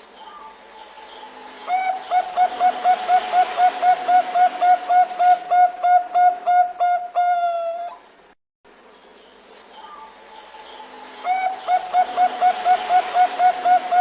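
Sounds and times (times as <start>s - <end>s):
dove cooing: 1.2s - 8.0s, 11.2s - 14.0s.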